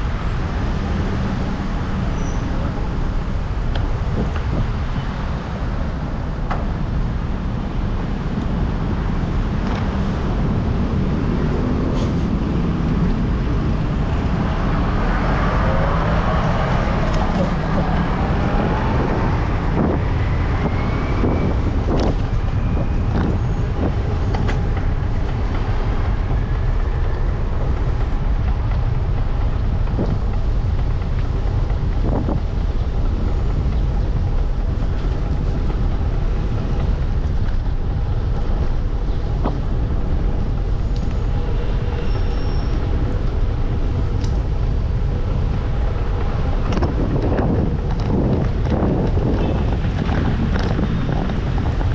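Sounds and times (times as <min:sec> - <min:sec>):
vehicle rumble: 0:00.0 - 0:51.9
wind buffeting microphone: 0:00.0 - 0:51.9.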